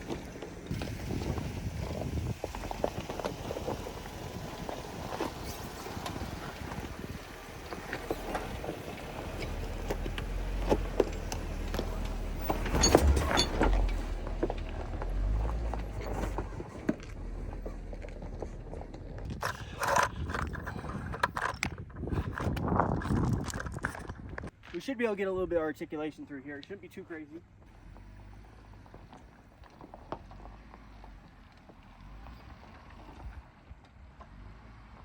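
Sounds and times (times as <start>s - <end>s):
tyres crunching on rock: 0.0s - 20.6s
vehicle engine rumble: 0.0s - 35.0s.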